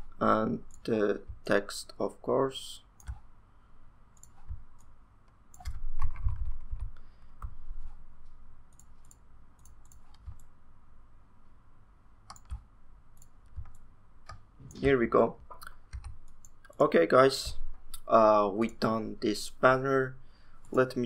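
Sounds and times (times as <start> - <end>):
mouse and keyboard clicks: 5.5 - 7.6, 12.3 - 12.6.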